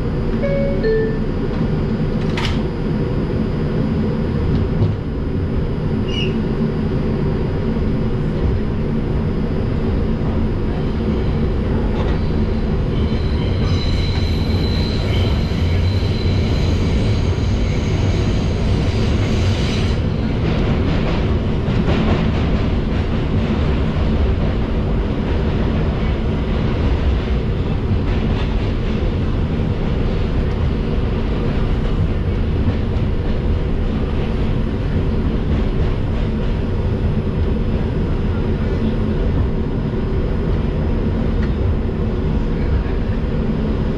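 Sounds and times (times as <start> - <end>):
subway wheels rumbling on rail: 0.0 - 43.9
high-pitched wheel squeal: 13.0 - 18.4.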